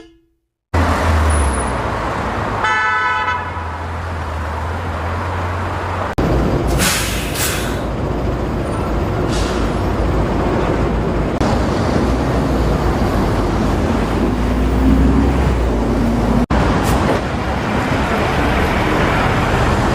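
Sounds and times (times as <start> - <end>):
vehicle engine rumble: 3.6 - 19.9
short hisses: 6.8 - 7.9.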